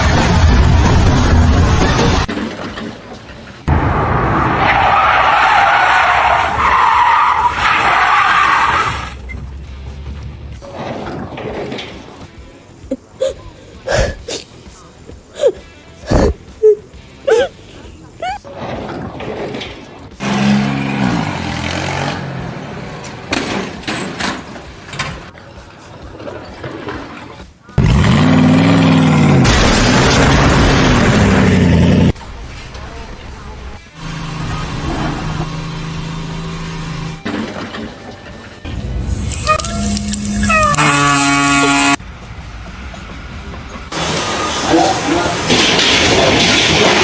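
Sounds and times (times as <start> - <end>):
harsh screech: 39.1 - 42.0.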